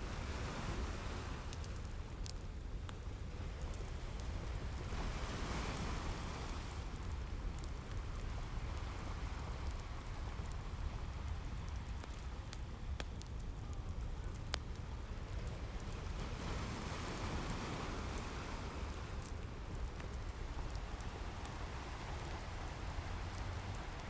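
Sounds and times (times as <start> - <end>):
ocean waves: 0.0 - 1.8, 3.4 - 12.2, 15.4 - 24.0
wood fire crackling: 0.2 - 24.0.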